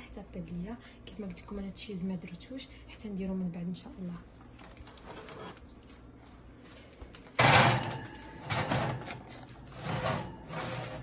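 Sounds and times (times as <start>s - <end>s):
metal tray scraping and clattering: 7.4s - 11.0s.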